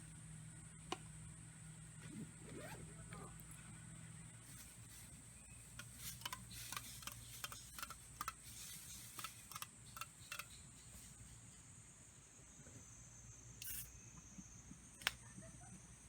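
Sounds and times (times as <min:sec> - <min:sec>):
high-pitched hiss: 0:05.4 - 0:15.0.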